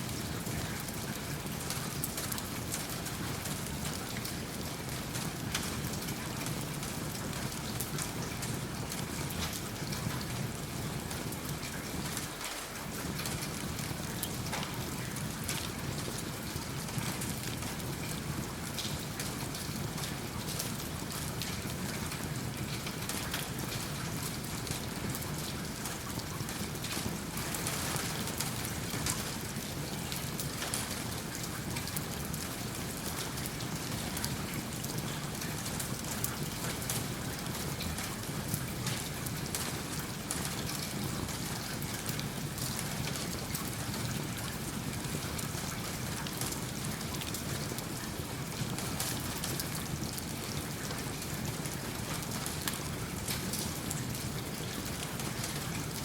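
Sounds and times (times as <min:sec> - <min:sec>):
steady rain falling: 0:00.0 - 0:56.0
wood fire crackling: 0:25.9 - 0:33.8.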